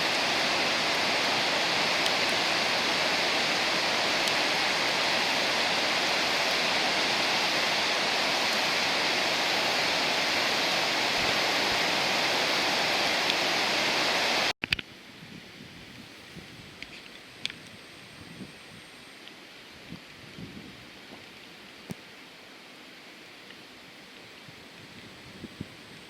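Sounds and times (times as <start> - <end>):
waterfall rushing: 0.0 - 14.5.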